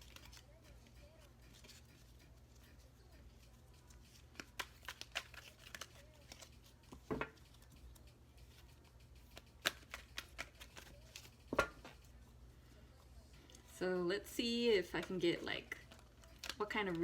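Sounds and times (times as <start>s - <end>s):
cards being shuffled: 0.0s - 12.3s, 14.9s - 17.0s.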